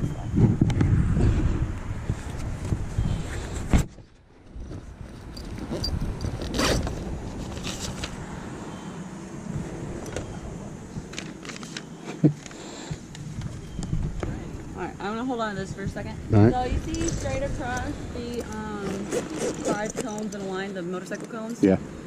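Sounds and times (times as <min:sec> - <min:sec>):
zipper: 0:05.4 - 0:08.0, 0:18.4 - 0:20.5
bag rustling: 0:16.6 - 0:20.7.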